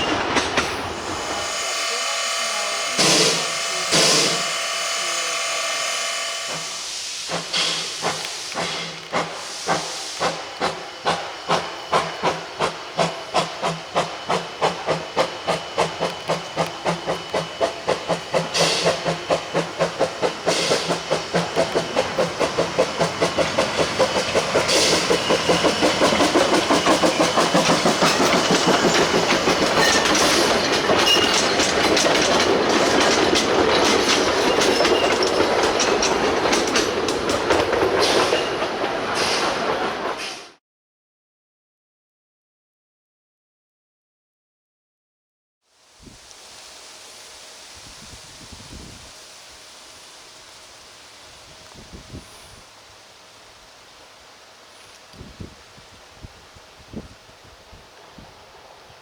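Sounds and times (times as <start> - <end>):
steam exhaust chuffs: 0.7 - 39.7
steam locomotive whistle: 1.0 - 7.8
wheels clickety-clack: 7.3 - 40.5.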